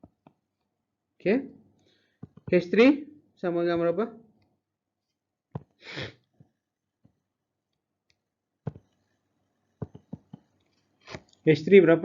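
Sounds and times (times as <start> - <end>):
soft clicks and taps: 2.2 - 2.6, 6.4 - 9.2, 9.8 - 11.4
short breath: 5.8 - 6.3.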